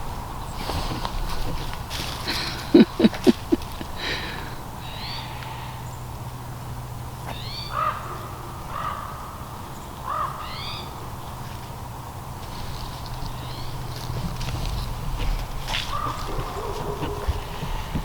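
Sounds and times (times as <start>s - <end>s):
harsh animal calls: 7.3s - 11.0s, 13.3s - 18.0s.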